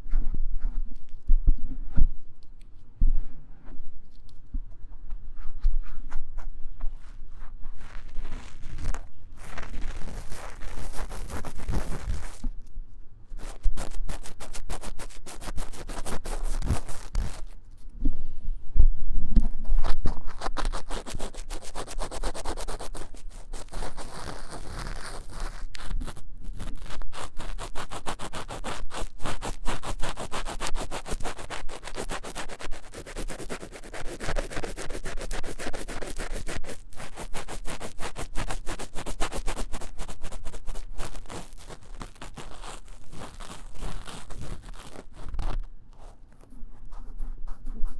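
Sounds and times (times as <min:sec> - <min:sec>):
ear-cleaning tool scratching: 0:07.8 - 0:12.5, 0:13.3 - 0:17.6, 0:19.8 - 0:46.2.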